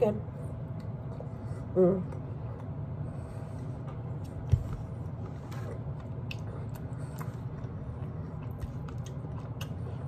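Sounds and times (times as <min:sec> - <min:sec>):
person chewing food: 0:02.1 - 0:10.0.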